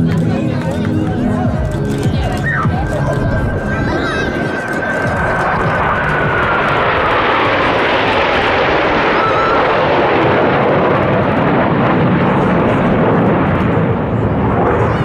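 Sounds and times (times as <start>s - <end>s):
fighter jet roaring past: 1.6s - 15.0s
high whine sliding down: 1.9s - 10.5s.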